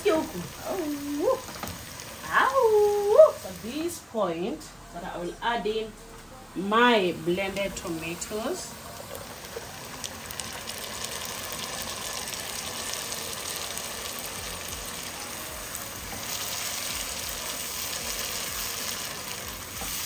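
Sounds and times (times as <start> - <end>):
onions sizzling in a pot: 0.0 - 5.9, 6.6 - 20.0
tomatoes poured into hot oil: 8.6 - 20.0.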